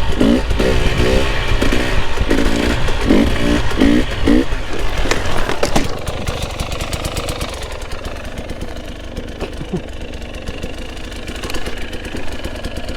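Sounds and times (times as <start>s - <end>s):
dirt bike engine idling: 0.0s - 12.9s.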